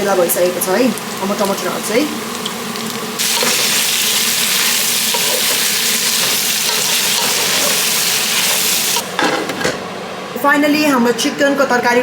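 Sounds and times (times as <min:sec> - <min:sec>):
food sizzling in hot oil: 0:00.0 - 0:09.2.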